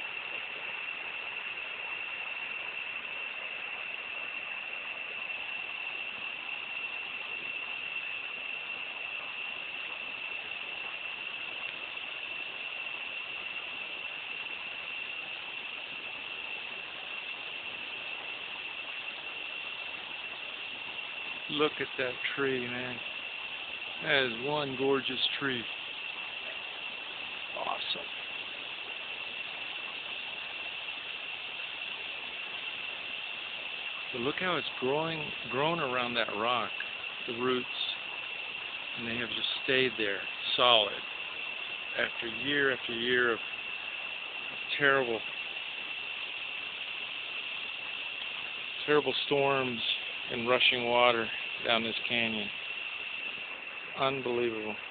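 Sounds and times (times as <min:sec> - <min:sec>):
high-pitched drone: 0:24.0 - 0:25.7, 0:27.5 - 0:28.3.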